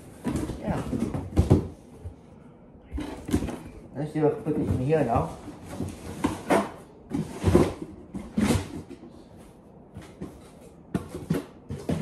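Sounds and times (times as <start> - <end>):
objects knocking and bumping: 0.0 - 2.2, 2.9 - 12.0.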